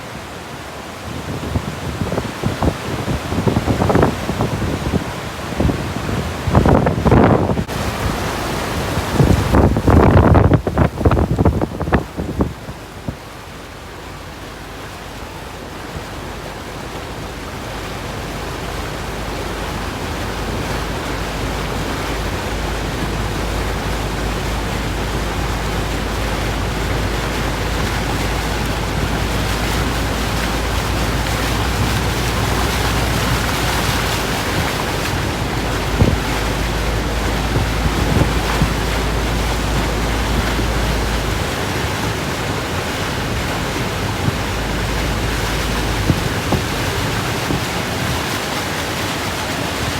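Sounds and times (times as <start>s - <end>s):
wind buffeting microphone: 0.9s - 49.9s
strong wind rushing: 1.0s - 13.2s, 18.8s - 49.9s.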